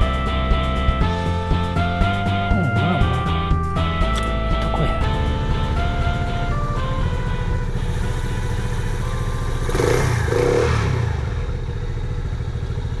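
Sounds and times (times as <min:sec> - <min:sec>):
small motorcycle engine revving: 0:05.0 - 0:13.0.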